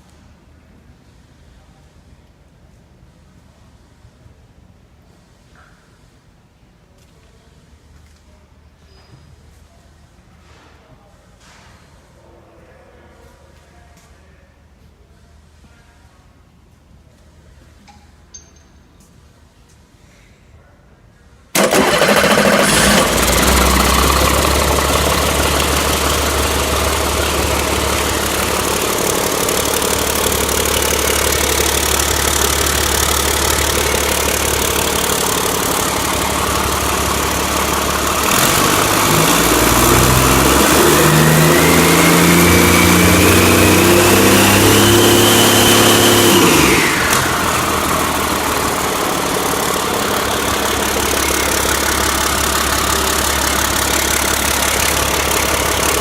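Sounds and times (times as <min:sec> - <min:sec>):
diesel engine idling and revving: 0:21.6 - 0:56.0.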